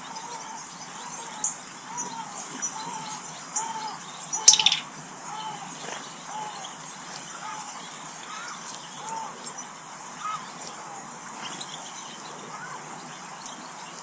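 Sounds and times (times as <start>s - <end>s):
thin high bird chirps: 4.3s - 4.9s
bird short arched call: 4.4s - 4.8s.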